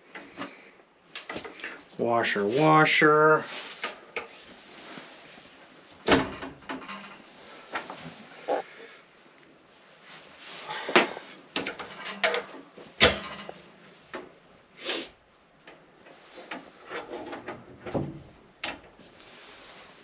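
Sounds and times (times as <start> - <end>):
plumbing parts knocking and clicking: 10.9 - 14.4, 15.6 - 19.0.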